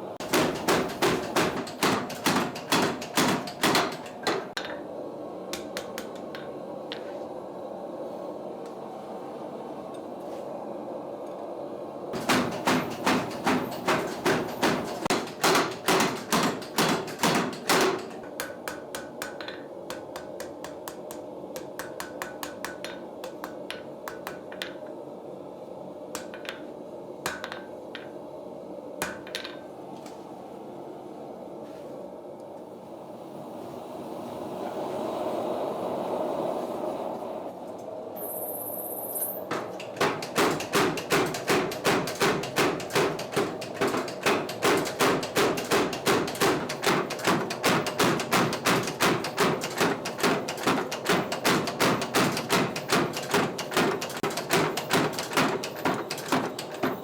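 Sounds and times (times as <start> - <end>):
hammer striking iron on anvil: 0.2 - 4.7, 12.2 - 24.8, 27.3 - 28.1, 29.0 - 29.6, 39.5 - 57.0.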